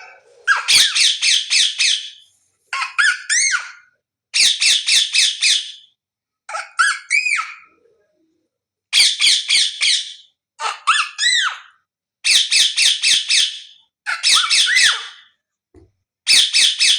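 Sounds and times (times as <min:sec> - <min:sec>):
parrot whistling: 0:00.0 - 0:02.2, 0:09.0 - 0:10.1
parrot squawking: 0:00.0 - 0:05.8, 0:06.5 - 0:07.8, 0:08.9 - 0:15.3, 0:16.3 - 0:16.9.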